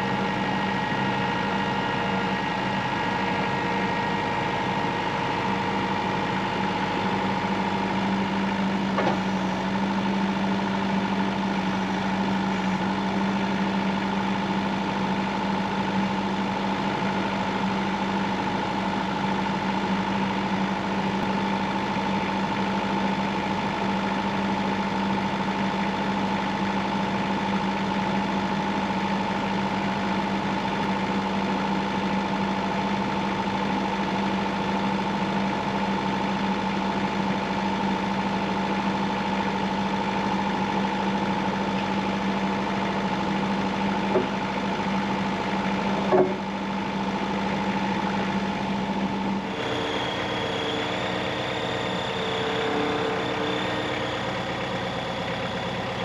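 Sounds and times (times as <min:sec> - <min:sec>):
engine running steadily: 0:00.0 - 0:56.0
high steady whine: 0:39.3 - 0:56.0.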